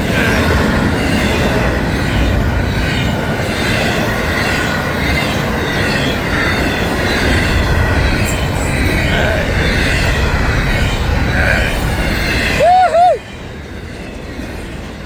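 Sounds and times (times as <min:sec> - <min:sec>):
freight train rumbling on rails: 0:00.0 - 0:15.0.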